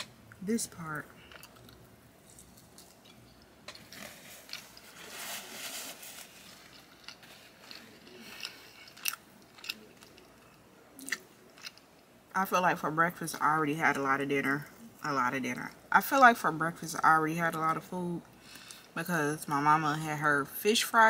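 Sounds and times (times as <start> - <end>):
chewing soft bread: 6.4 - 12.1.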